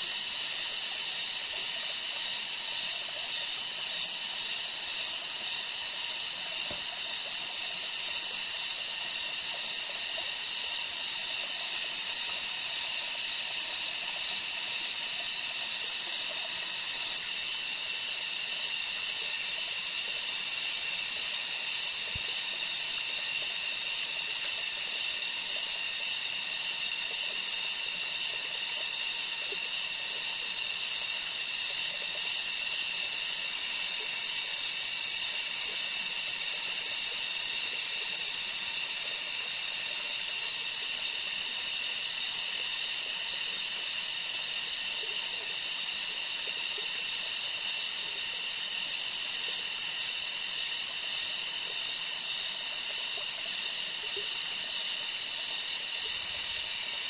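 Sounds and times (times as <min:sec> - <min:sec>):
insect chorus buzzing: 0:02.6 - 0:28.4, 0:32.7 - 0:57.0.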